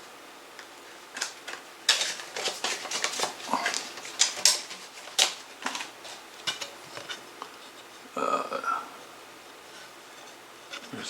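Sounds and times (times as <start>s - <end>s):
plastic case clicking and clacking: 1.2s - 5.9s.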